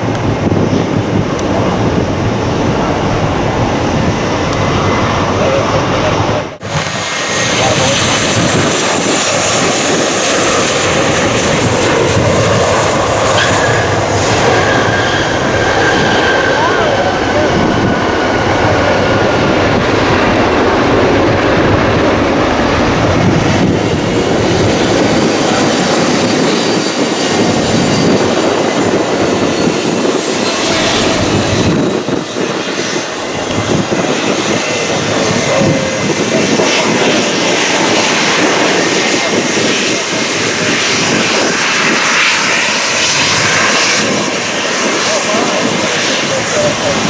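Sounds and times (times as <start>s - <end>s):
jet airliner engines: 0.0s - 47.0s.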